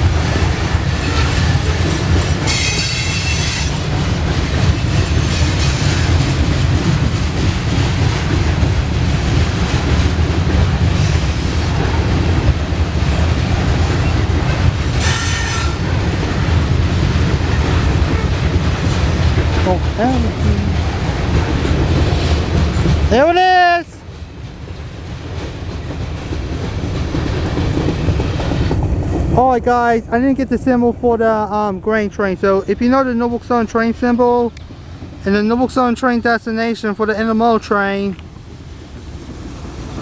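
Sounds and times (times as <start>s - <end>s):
freight train wheels rumbling: 0.0s - 40.0s
train wheels squealing: 2.3s - 3.9s, 14.9s - 15.9s.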